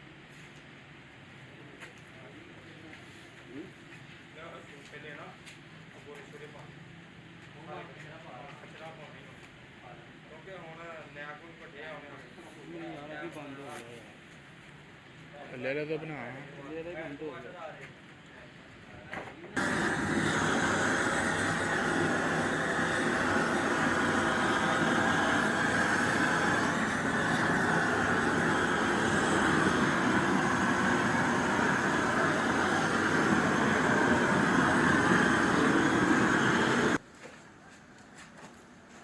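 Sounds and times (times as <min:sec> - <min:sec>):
loud machine rushing noise: 0:19.6 - 0:37.0.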